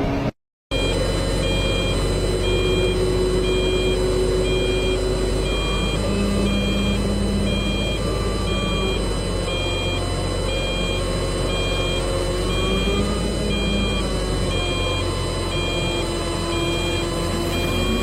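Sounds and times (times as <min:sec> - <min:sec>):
heavy vehicle engine drone: 0:00.0 - 0:18.0
reversing alarm beeping: 0:00.7 - 0:18.0.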